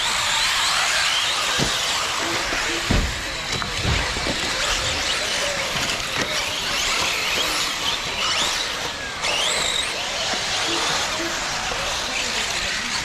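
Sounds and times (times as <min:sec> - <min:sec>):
electric motors whining: 0:00.0 - 0:13.0
low thumps: 0:02.8 - 0:05.0.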